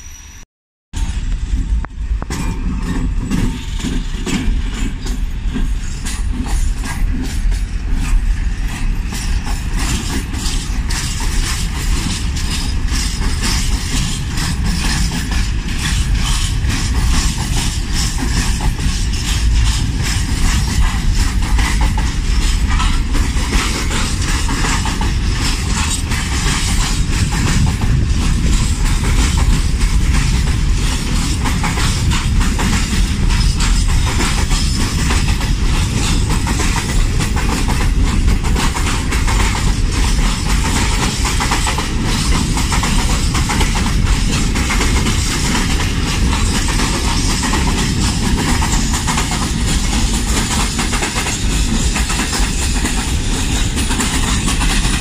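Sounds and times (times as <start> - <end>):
train wheels clattering over joints: 1.4 - 55.0.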